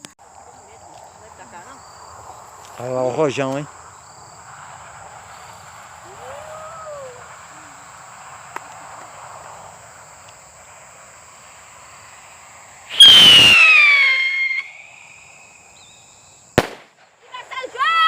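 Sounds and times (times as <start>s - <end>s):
skyrocket firework hiss and whistle: 4.4s - 17.1s
firework bang: 12.9s - 15.1s, 16.6s - 17.1s.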